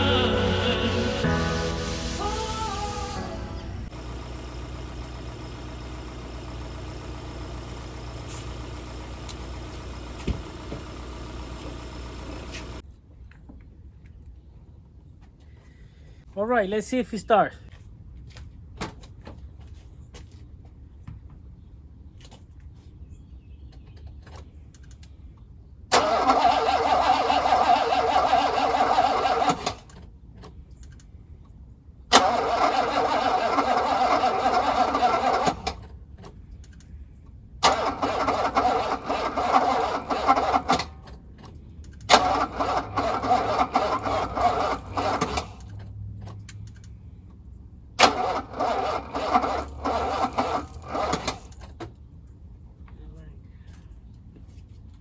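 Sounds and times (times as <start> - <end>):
car engine cranking: 25.9 - 30.0, 32.1 - 36.8, 37.6 - 46.9, 48.0 - 51.8.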